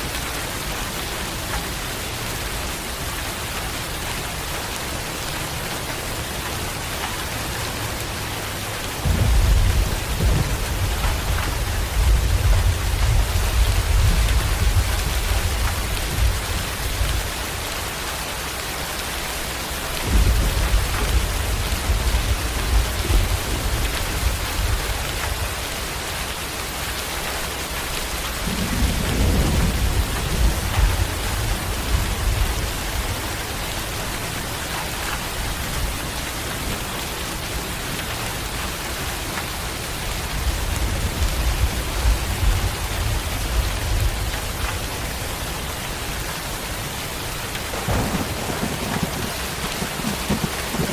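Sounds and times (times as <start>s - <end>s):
heavy rain hissing: 0.0s - 50.9s
thunder rumbling: 9.0s - 17.4s, 20.0s - 25.5s, 28.4s - 36.8s, 47.4s - 50.9s.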